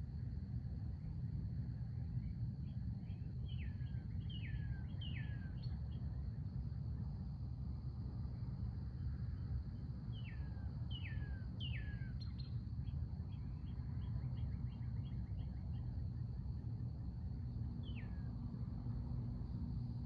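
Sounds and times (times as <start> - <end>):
low background rumble: 0.1 - 20.0
songbird singing: 3.0 - 5.8, 10.1 - 16.4, 17.7 - 18.3.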